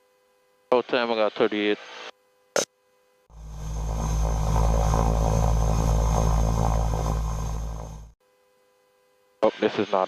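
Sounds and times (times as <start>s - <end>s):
turboprop engines droning: 3.3s - 8.2s.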